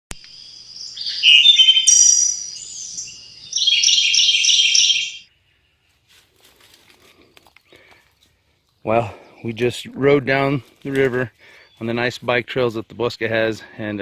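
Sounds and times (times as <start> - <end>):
birds chirping and singing: 0.2 - 5.9, 8.8 - 13.5.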